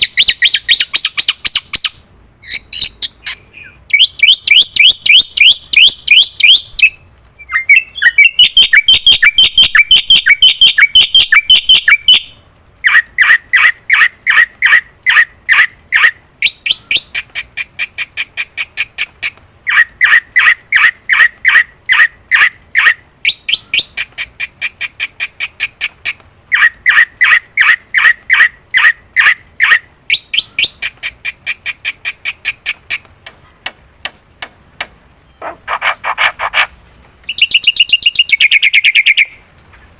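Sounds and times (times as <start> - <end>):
starling calling in rapid notes: 7.6 - 16.2, 35.4 - 36.7.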